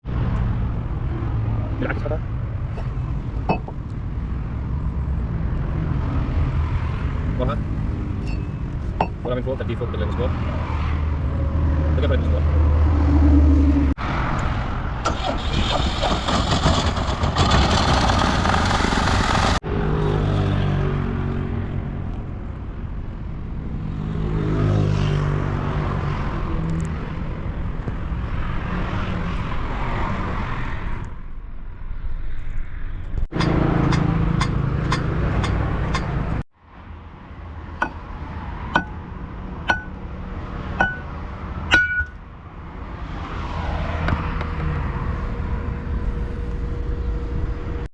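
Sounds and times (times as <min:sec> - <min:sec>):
heavy machinery engine running: 0:15.0 - 0:19.6
sharp metal strikes: 0:38.8 - 0:39.0, 0:39.7 - 0:40.0, 0:40.8 - 0:42.2.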